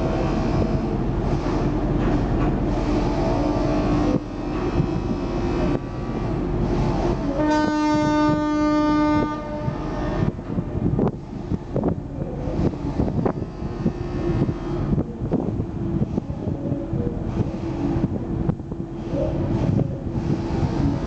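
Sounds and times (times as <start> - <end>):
wind: 0.0 - 21.0
ferry horn blast: 7.2 - 10.3.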